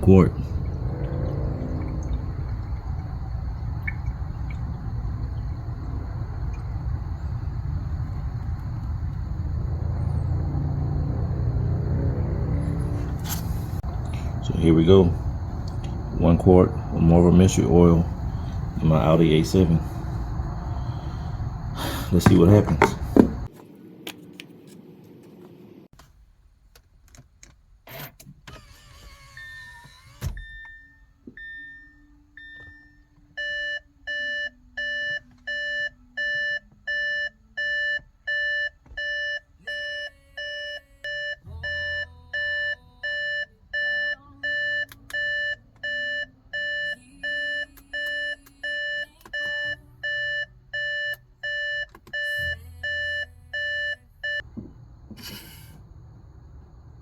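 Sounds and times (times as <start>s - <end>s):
low steady hum: 0.0s - 24.7s
car warning chime: 14.1s - 21.2s, 22.1s - 23.5s, 30.4s - 54.5s.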